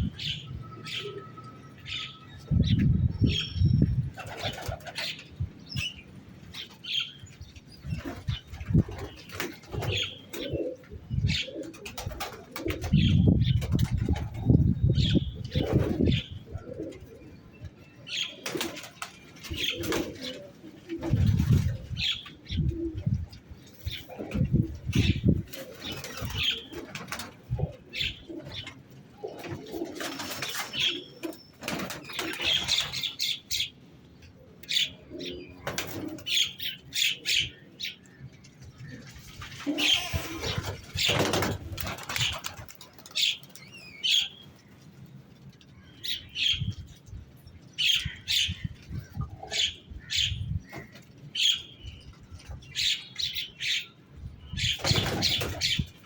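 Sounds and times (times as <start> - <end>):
pigeons cooing: 8.0 - 17.4, 18.1 - 33.7, 34.4 - 37.9, 38.8 - 43.4, 47.8 - 51.6
wing flapping: 39.4 - 43.6.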